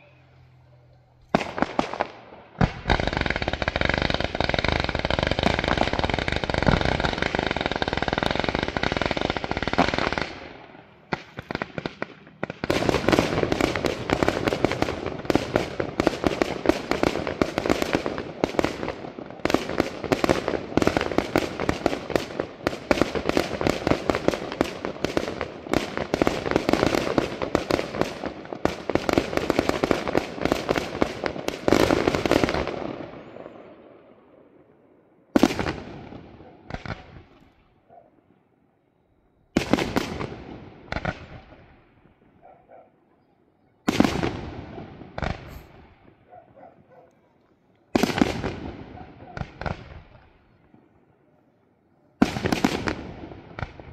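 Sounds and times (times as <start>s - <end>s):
fireworks whistling: 0.0s - 19.0s, 43.9s - 46.1s
fireworks rushing: 0.0s - 38.3s, 39.4s - 42.8s, 43.8s - 47.0s, 47.9s - 51.6s, 52.2s - 53.9s
firework bangs and crackles: 1.2s - 37.6s, 39.5s - 42.5s, 43.8s - 46.3s, 47.9s - 51.6s, 52.2s - 53.9s.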